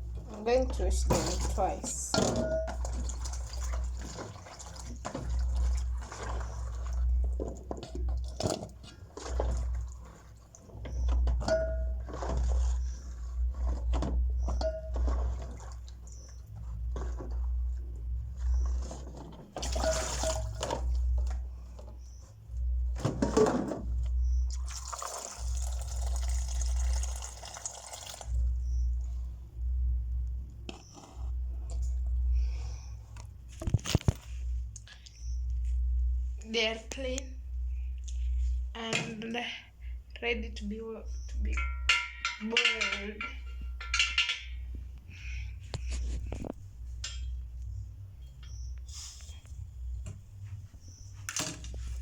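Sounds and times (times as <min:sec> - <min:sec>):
water pouring: 0:01.2 - 0:07.4, 0:19.6 - 0:20.8, 0:24.5 - 0:28.4
water dripping: 0:01.3 - 0:07.2, 0:24.5 - 0:28.4
bowl knocking: 0:41.5 - 0:44.7.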